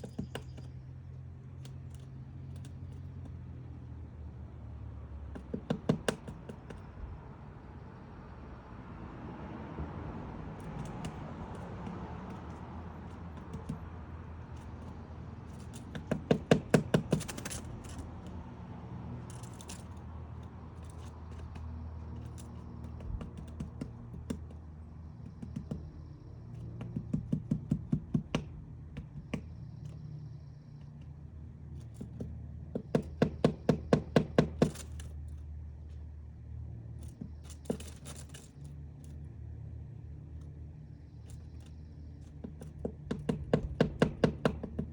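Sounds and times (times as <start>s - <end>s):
woodpecker pecking wood: 0.0s - 7.4s, 10.3s - 36.2s, 40.2s - 44.9s.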